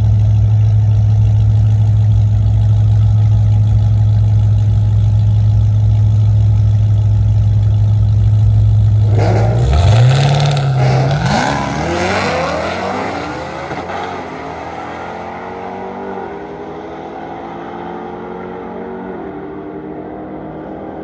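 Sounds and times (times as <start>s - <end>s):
drag racing car engine accelerating: 8.9s - 21.0s.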